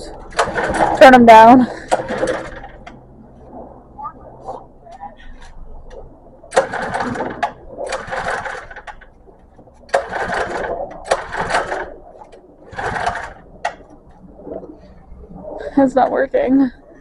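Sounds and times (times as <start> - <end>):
recoil starter rope pulls: 0.2 - 3.0, 6.5 - 9.1, 9.8 - 12.0, 12.6 - 13.9
small engine cranking: 0.3 - 2.9, 6.5 - 9.1, 9.9 - 12.0, 12.7 - 13.8.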